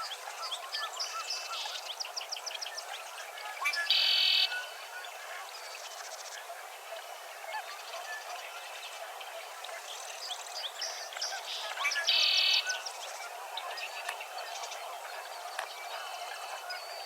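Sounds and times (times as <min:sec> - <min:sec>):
birds chirping and calling: 0:09.7 - 0:17.0.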